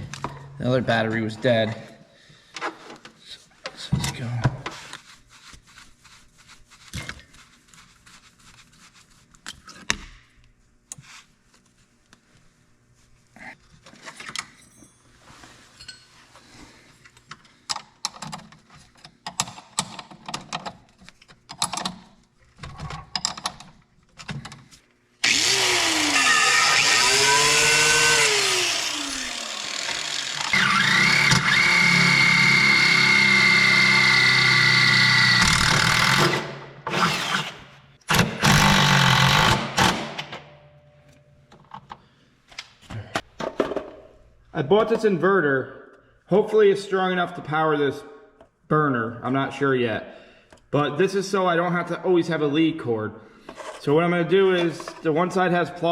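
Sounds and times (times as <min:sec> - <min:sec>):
pressure washer running: 0:25.2 - 0:34.4.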